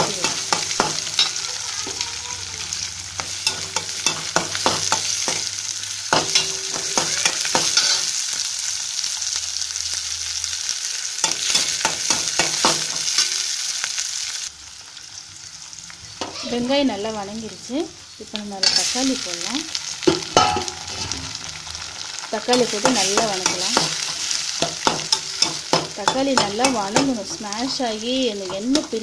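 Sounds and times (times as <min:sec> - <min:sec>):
onions sizzling in oil: 0:00.0 - 0:29.0
steel ladle scraping a pan: 0:02.8 - 0:08.4, 0:16.2 - 0:16.7, 0:18.6 - 0:19.4, 0:20.0 - 0:21.9.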